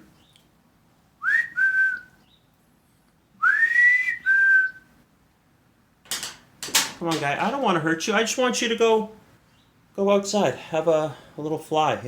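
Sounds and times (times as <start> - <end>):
person whistling two-note call: 3.4 - 4.8.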